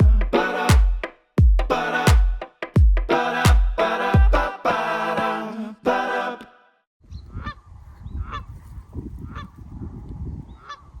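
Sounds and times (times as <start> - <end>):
music: 0.0 - 5.5.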